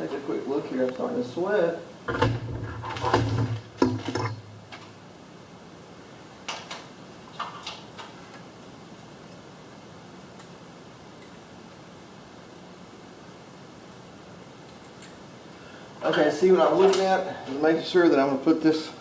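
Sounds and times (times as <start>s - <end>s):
faint steady hum: 0.0s - 19.0s
light clicks of small parts: 10.2s - 10.6s, 14.6s - 15.2s.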